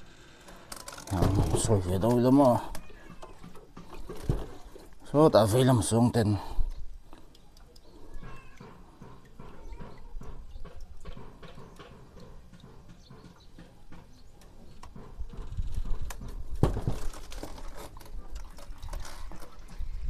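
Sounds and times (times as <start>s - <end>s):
engine oil pouring and dripping: 0.2s - 15.2s.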